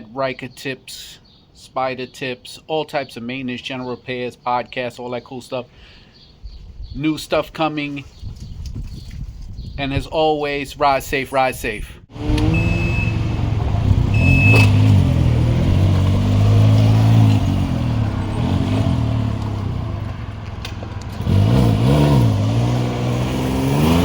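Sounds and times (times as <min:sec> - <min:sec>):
engine revving: 0:12.1 - 0:24.0.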